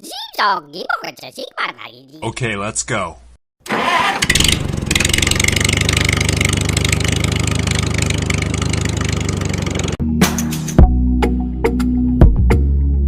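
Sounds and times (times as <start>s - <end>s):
engine running: 3.7s - 10.0s
music: 10.0s - 13.0s.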